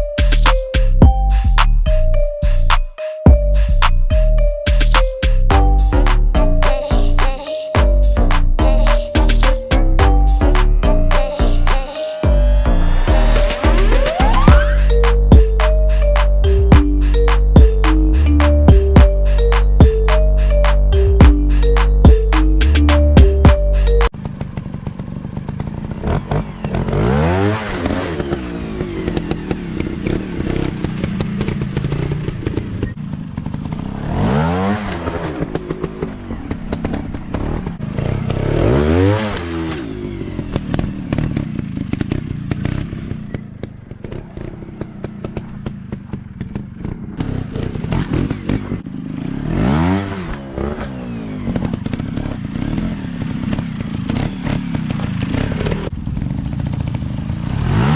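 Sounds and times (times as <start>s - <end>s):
motorcycle engines revving: 0.0s - 57.9s
bikes clattering and knocking: 15.0s - 27.1s, 27.7s - 38.7s, 39.4s - 49.5s, 50.3s - 57.5s.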